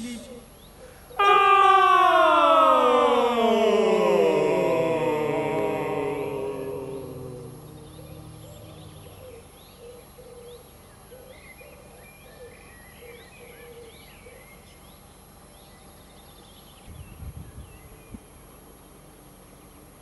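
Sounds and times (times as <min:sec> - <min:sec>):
birds chirping: 0:07.7 - 0:09.6.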